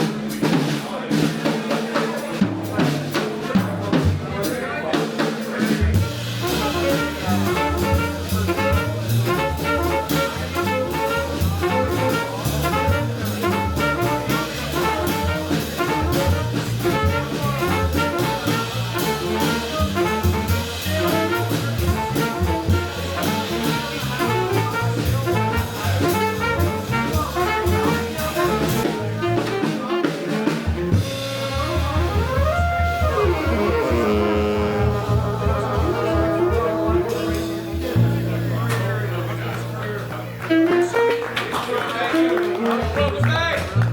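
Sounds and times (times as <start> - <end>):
live jazz band: 0.0 - 43.9
horn sliding in pitch: 31.7 - 38.6.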